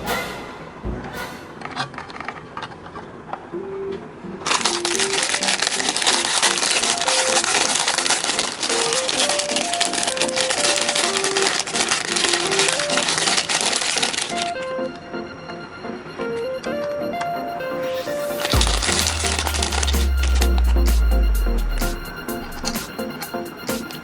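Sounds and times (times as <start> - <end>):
light background music: 0.0 - 1.8, 3.6 - 24.0
plastic packaging crinkling: 4.4 - 14.6.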